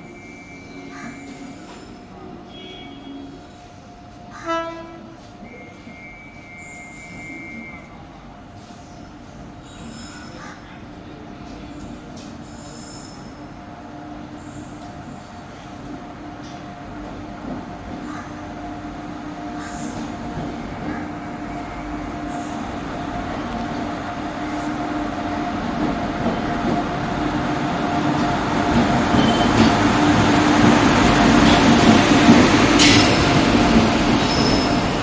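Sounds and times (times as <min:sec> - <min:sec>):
train running gear rumble: 0:07.9 - 0:35.0.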